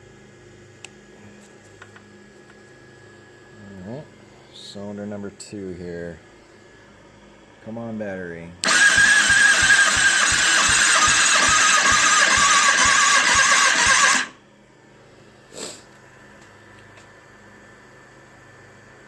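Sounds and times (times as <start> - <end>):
starter cranking engine: 8.6 - 14.4.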